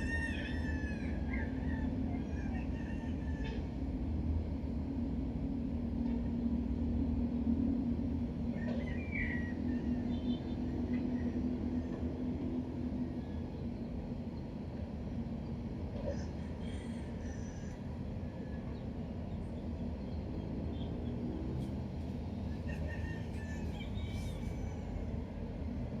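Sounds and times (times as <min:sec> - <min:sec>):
engine running with low hum: 0:00.0 - 0:26.0.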